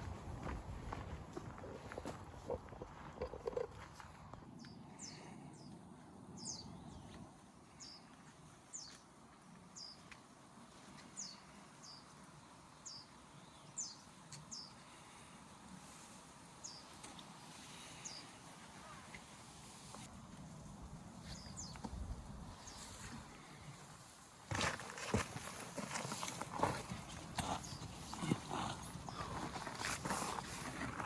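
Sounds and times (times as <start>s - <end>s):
faint steady hiss: 7.4s - 24.5s.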